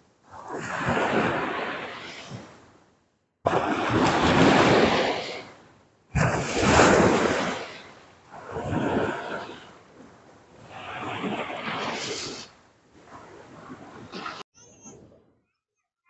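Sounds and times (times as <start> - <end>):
surf washing up on beach: 0.3 - 2.6, 3.5 - 9.7, 10.5 - 14.5.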